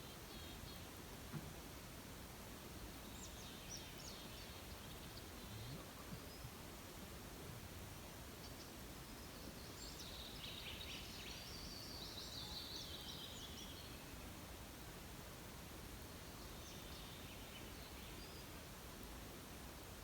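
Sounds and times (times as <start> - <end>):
faint songbird chirping: 0.0 - 0.9, 3.0 - 6.7, 8.4 - 14.4, 16.2 - 18.7
steady background hiss: 0.0 - 20.0.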